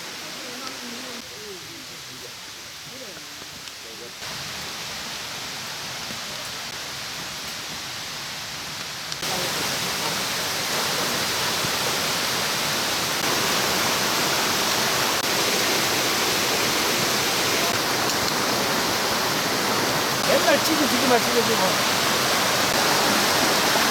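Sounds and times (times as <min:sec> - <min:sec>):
mountain stream rushing: 0:00.0 - 0:23.9.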